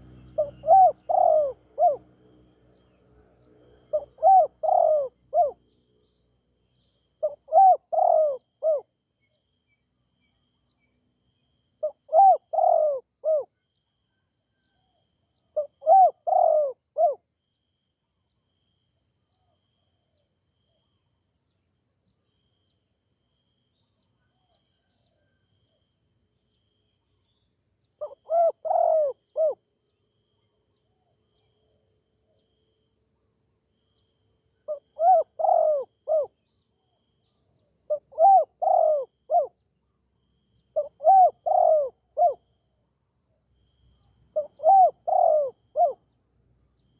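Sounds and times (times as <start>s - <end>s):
dove cooing: 0.0s - 2.0s, 3.9s - 5.6s, 7.2s - 8.9s, 11.8s - 13.5s, 15.6s - 17.2s, 28.0s - 29.6s, 34.7s - 36.3s, 37.9s - 39.6s, 40.8s - 42.4s, 44.3s - 46.0s.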